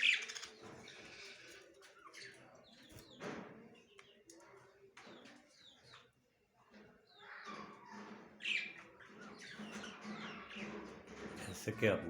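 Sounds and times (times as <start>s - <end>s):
budgerigars chirping and chattering: 0.0s - 4.4s, 7.0s - 12.0s.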